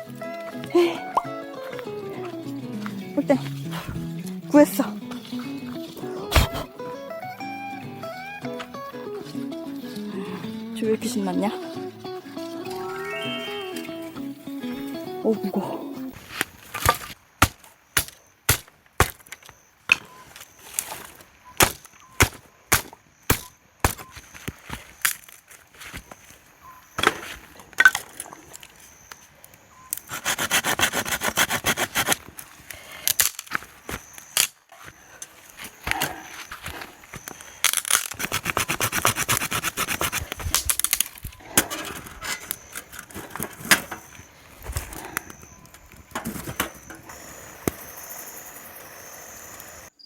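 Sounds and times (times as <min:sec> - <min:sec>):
axe chopping firewood: 0:06.2 - 0:06.7, 0:16.2 - 0:20.2, 0:20.8 - 0:25.3, 0:27.0 - 0:28.2, 0:35.7 - 0:47.0
hand saw rasping through wood: 0:30.1 - 0:32.2, 0:38.1 - 0:40.5.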